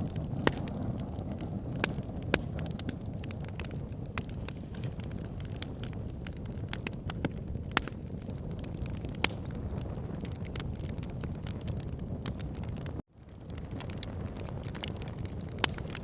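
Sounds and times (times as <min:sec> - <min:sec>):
fire rumbling: 0:00.0 - 0:16.0
logs crackling and popping: 0:00.0 - 0:16.0.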